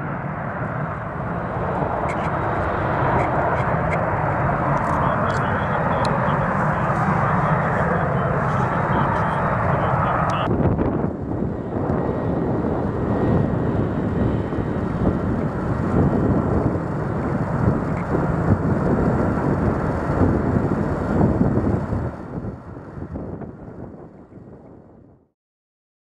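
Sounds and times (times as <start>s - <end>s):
wind buffeting microphone: 0.0s - 25.2s
jet engine rumble: 0.0s - 25.3s.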